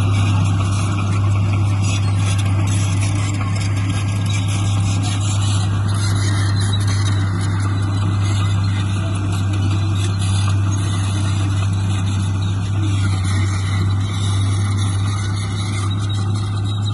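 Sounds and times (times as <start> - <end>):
heavy diesel engine running: 0.0 - 16.9.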